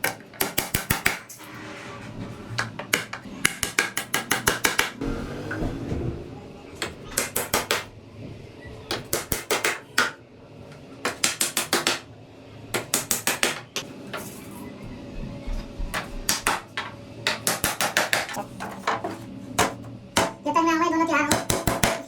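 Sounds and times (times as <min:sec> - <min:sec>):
hammer tapping on wooden sticks: 0:02.9 - 0:05.0, 0:08.9 - 0:10.2.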